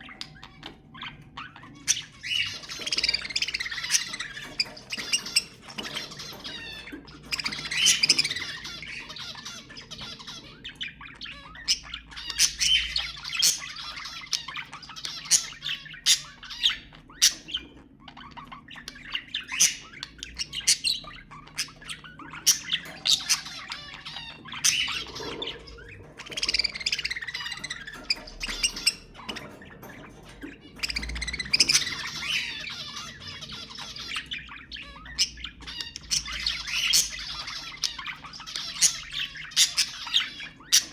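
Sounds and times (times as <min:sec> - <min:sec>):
budgerigars chattering: 0:00.0 - 0:40.9.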